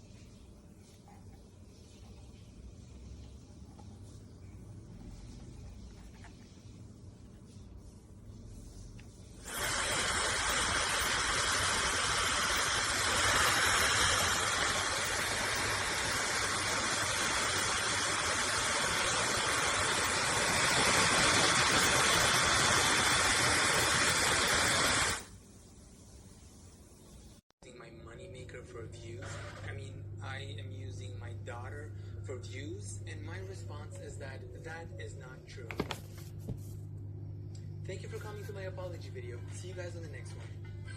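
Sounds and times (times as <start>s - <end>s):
hair dryer blowing: 9.4s - 25.3s.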